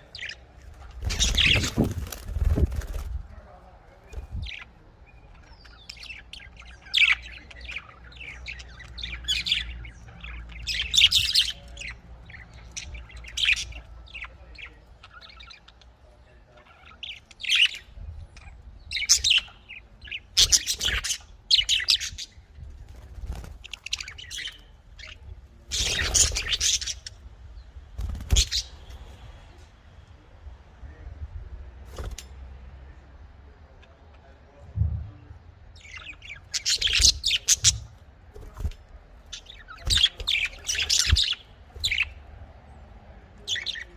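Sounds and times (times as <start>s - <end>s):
budgerigars chirping and chattering: 0.0s - 3.1s, 4.0s - 27.3s, 28.0s - 29.1s, 35.7s - 42.4s, 43.4s - 43.9s
faint low hum: 0.0s - 43.9s.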